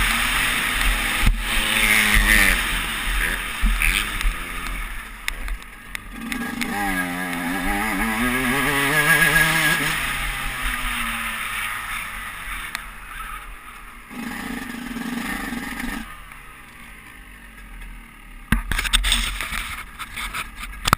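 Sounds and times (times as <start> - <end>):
sharp knocks and scraping clatter: 0.0 - 9.8, 17.5 - 20.9
dirt bike engine winding down: 0.0 - 19.5.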